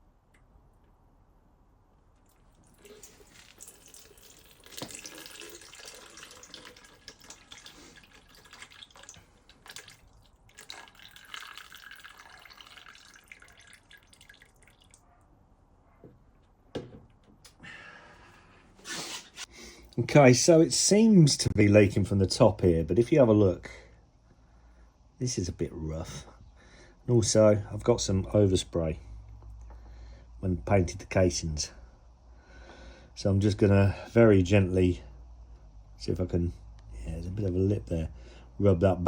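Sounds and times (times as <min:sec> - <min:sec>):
coolant trickling and dripping: 0:02.1 - 0:15.1.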